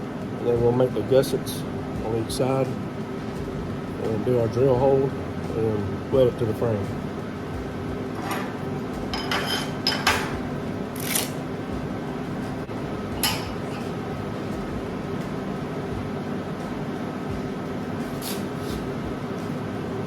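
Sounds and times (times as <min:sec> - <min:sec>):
steady hum: 0:00.0 - 0:20.0
metallic clinks and scrapes of tools: 0:09.2 - 0:10.3, 0:11.0 - 0:11.4.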